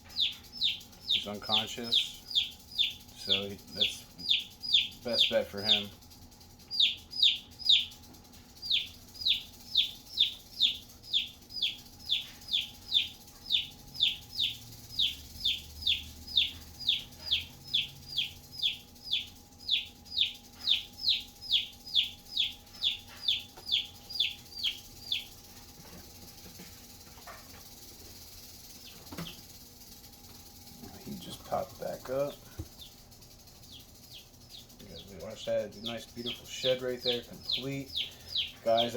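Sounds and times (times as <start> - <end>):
chick peeping: 0.0 - 5.9, 6.7 - 8.0, 8.6 - 25.4, 33.6 - 38.9.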